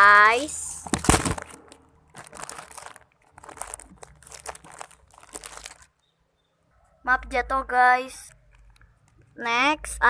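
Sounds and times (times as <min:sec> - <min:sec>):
squishy toys crinkling and rustling: 0:00.0 - 0:06.0, 0:08.2 - 0:09.4.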